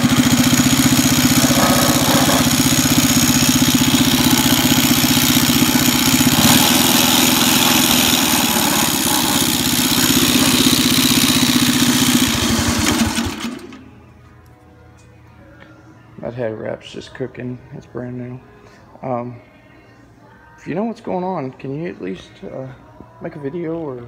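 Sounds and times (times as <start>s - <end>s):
small engine idling: 0.0s - 14.0s.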